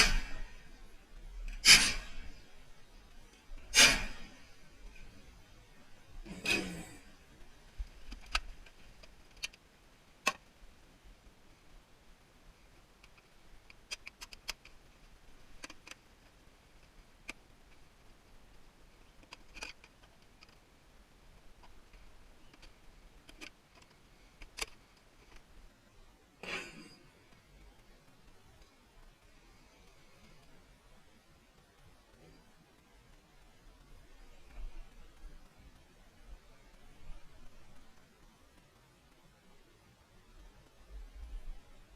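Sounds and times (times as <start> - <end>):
metal parts clicking and tapping: 13.0 - 14.8, 19.2 - 20.6.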